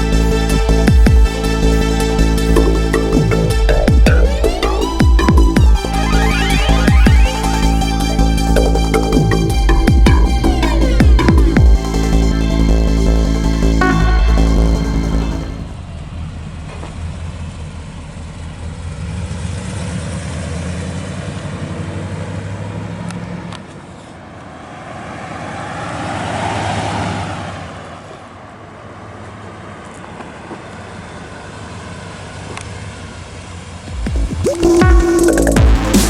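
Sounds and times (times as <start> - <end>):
engine running: 0.0 - 24.1, 29.2 - 36.0
rushing sound: 33.8 - 36.0.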